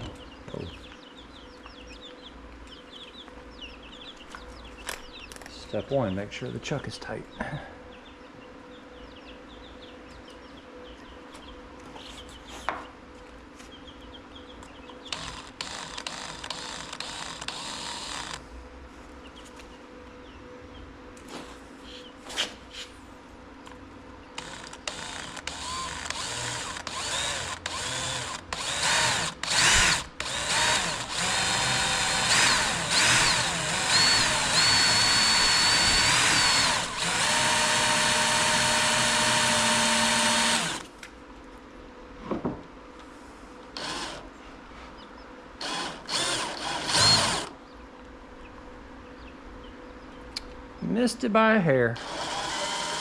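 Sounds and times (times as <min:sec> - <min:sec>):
power drill boring: 0:15.1 - 0:18.4, 0:24.4 - 0:40.8, 0:43.8 - 0:44.2, 0:45.6 - 0:47.5, 0:52.0 - 0:53.0.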